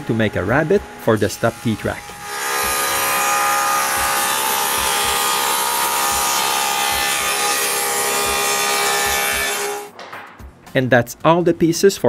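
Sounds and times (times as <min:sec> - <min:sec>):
power tool motor whine: 0:01.8 - 0:07.4.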